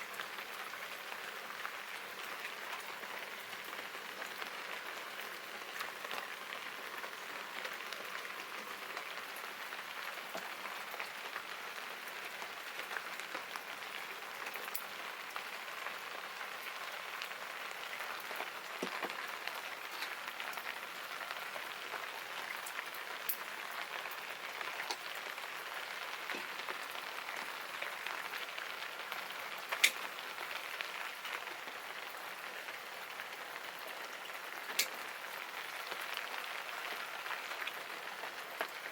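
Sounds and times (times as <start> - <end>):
steady rain patter: 0.0 - 38.9
small sharp clicks: 29.7 - 30.0.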